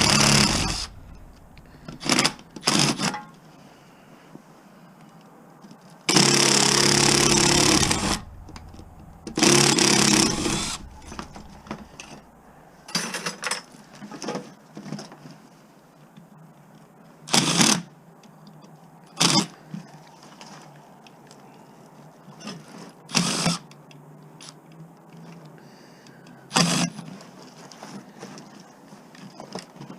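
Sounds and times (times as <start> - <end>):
power driver motor bursts: 0.0 - 3.1, 6.1 - 12.8.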